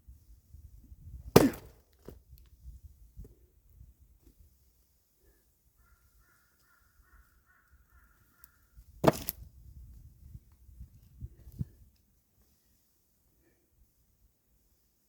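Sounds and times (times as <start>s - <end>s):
axe striking firewood: 1.2s - 2.2s, 9.0s - 9.5s
crow cawing: 5.8s - 8.7s.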